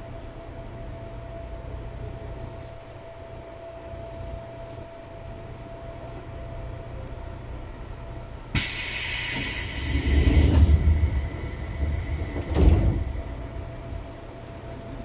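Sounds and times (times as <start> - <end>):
train low rumbling: 0.0 - 15.0
air hiss burst: 8.6 - 13.1
heavy thump: 10.3 - 13.8.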